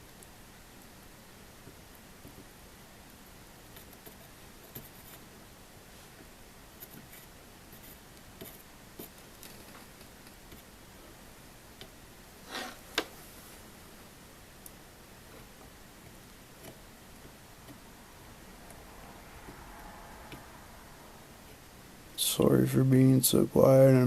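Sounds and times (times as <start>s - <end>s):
tool scrape: 12.4s - 12.9s.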